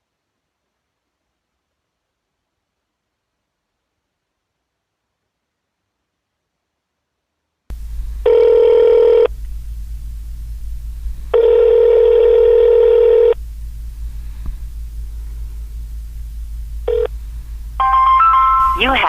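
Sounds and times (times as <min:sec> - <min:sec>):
electronic telephone ringing: 0:08.2 - 0:09.3, 0:11.3 - 0:13.4, 0:16.9 - 0:17.1, 0:17.8 - 0:19.0.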